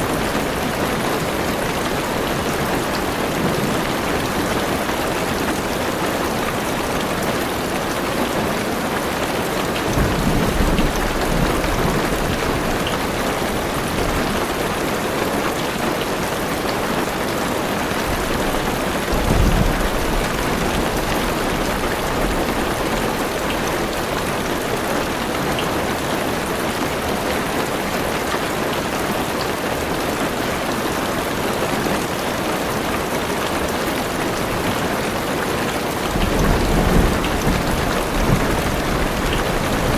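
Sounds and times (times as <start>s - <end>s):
heavy rain on car roof: 0.0s - 39.9s
low thunder rolls: 18.0s - 24.0s, 36.1s - 39.9s.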